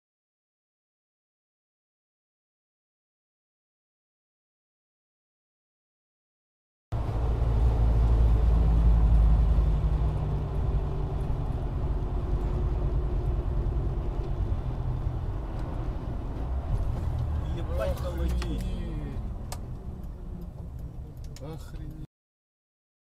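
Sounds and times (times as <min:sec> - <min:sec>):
car engine and road noise: 0:06.9 - 0:22.1.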